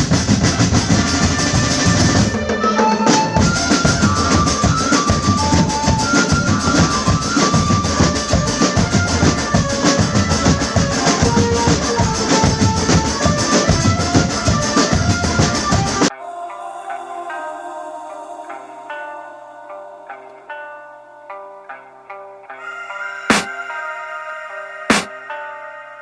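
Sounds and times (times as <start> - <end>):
bass and snare drums beating: 0.0 - 2.5, 3.1 - 16.1, 24.9 - 25.1.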